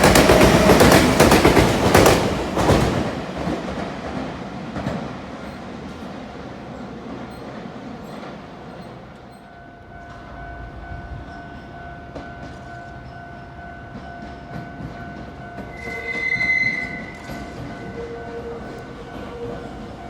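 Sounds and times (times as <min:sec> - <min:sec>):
electric train whining on rails: 0:00.0 - 0:20.0
train wheels squealing: 0:07.2 - 0:09.5, 0:15.5 - 0:20.0.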